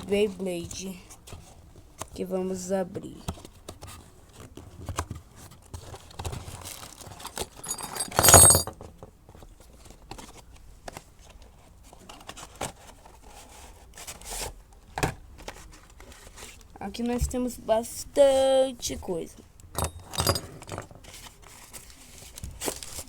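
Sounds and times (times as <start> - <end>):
packaging rustling: 6.2 - 8.2.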